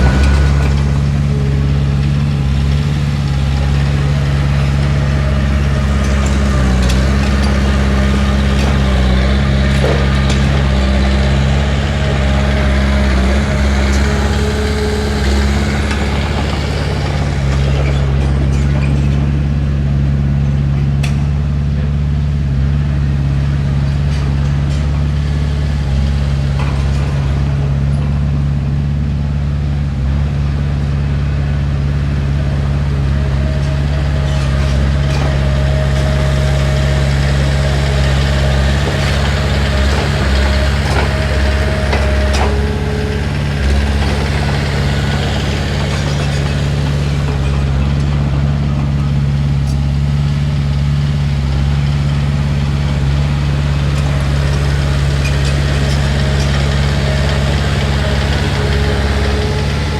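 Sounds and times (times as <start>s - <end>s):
bulldozer diesel engine drone: 0.0s - 59.9s.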